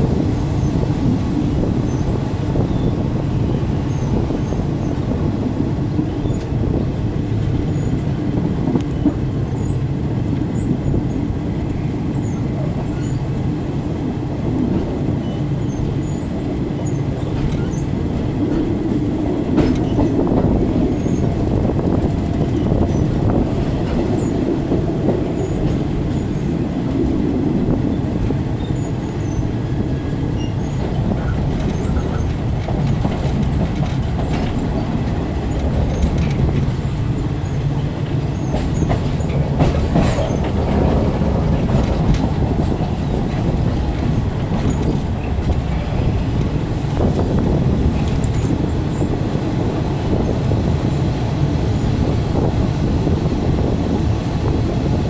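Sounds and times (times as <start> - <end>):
train wheels rumbling: 0.0 - 55.0
track clicks and knocks: 29.9 - 51.1.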